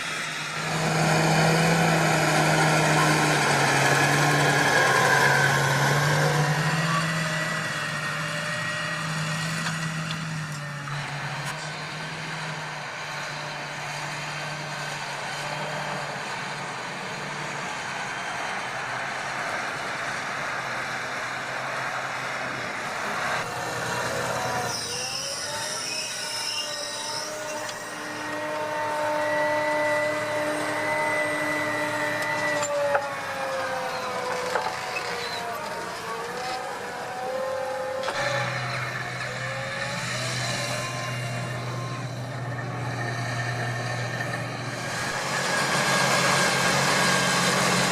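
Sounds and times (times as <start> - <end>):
tractor diesel engine humming: 0.0 - 47.9
steady whine: 14.5 - 47.9.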